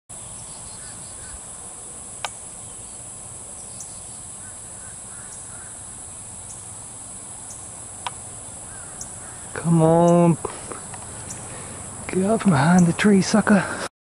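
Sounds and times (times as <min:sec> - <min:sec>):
insect chorus drone: 0:00.1 - 0:13.9
faint bird chirps: 0:00.2 - 0:01.9, 0:02.6 - 0:06.7, 0:08.5 - 0:12.0.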